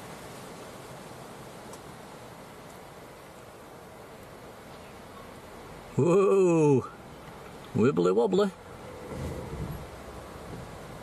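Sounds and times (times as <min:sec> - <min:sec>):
gusty wind on microphone: 0:08.9 - 0:11.0.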